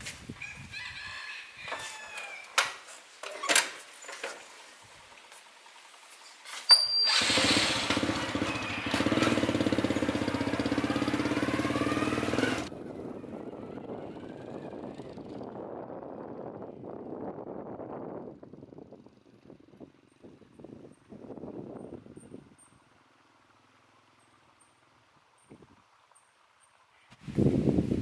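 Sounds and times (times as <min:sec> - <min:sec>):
excavator diesel engine running: 0:07.1 - 0:15.4.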